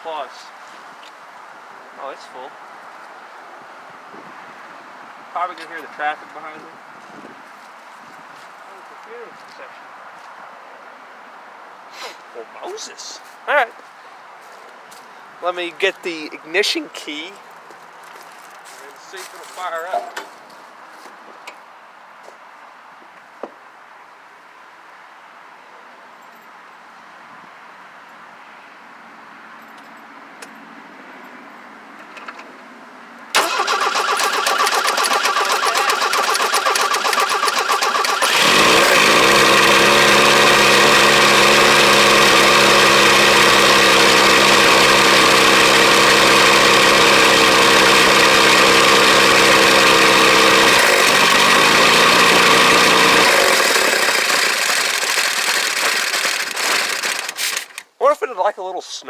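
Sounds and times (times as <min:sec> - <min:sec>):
engine running: 0:33.4 - 0:57.8
starter cranking engine: 0:33.4 - 0:57.9.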